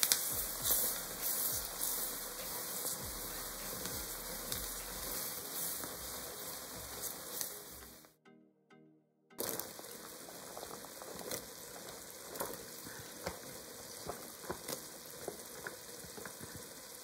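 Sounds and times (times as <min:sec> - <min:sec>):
crackling pops: 0:00.0 - 0:08.1, 0:09.4 - 0:17.0
roux sizzling in a pot: 0:00.0 - 0:08.1, 0:09.4 - 0:17.0
vegetables poured into a pot: 0:09.4 - 0:16.8.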